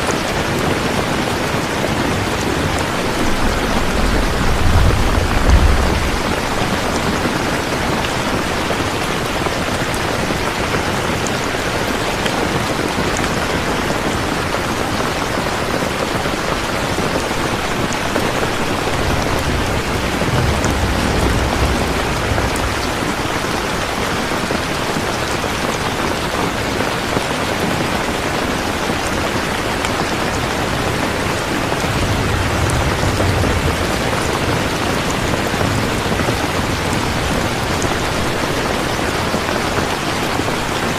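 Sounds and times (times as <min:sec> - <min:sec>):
heavy rain falling: 0:00.0 - 0:40.9
distant thunder rumbles: 0:01.4 - 0:10.6, 0:15.6 - 0:25.9, 0:30.1 - 0:39.4.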